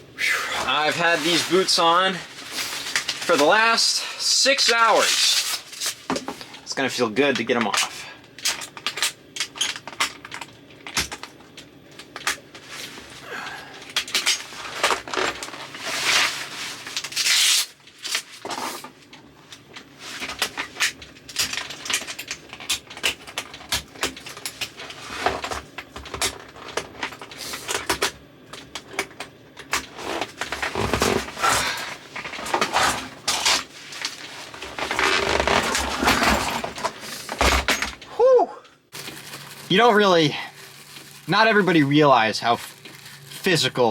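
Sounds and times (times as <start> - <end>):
boots and clothing rustling: 0.6 - 3.6, 30.0 - 37.7.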